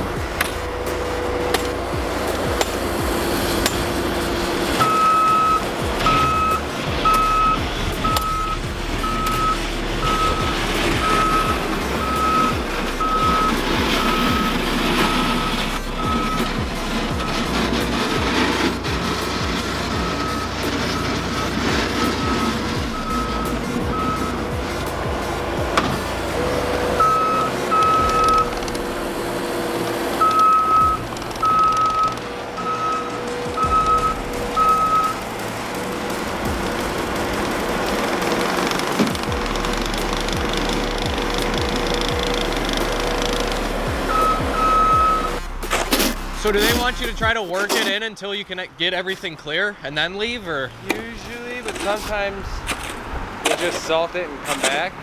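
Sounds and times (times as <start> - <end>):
vehicle backup alarm beeping: 0.0 - 54.6
engine running: 0.0 - 55.0.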